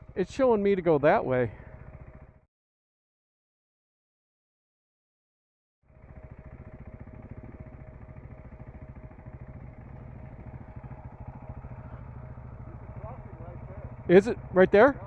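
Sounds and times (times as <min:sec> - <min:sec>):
motorcycle engine running: 0:00.0 - 0:02.5, 0:05.8 - 0:15.0.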